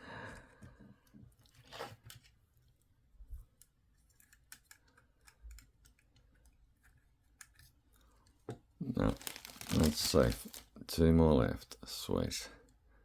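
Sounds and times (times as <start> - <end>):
plastic toy parts rustling: 8.8 - 10.8.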